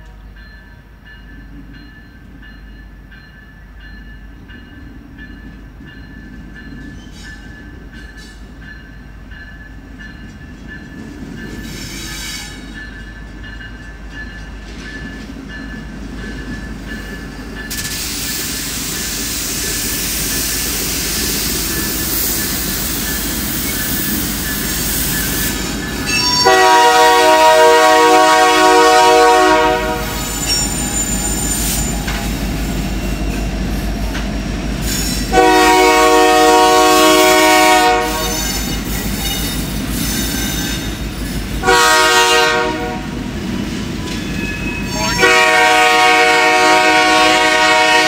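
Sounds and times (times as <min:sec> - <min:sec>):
freight train engine rumble: 0:00.0 - 0:48.0
hissing wheel-on-rail noise: 0:00.0 - 0:48.0
locomotive horn: 0:26.1 - 0:31.4, 0:35.3 - 0:38.9, 0:41.6 - 0:43.2, 0:44.8 - 0:48.0.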